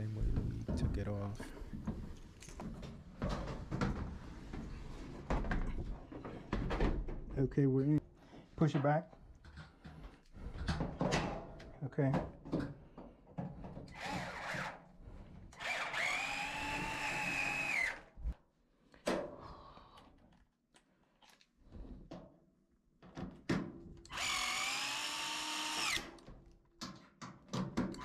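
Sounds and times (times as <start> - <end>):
power drill spinning: 13.9 - 14.7, 15.5 - 18.4, 24.1 - 26.2.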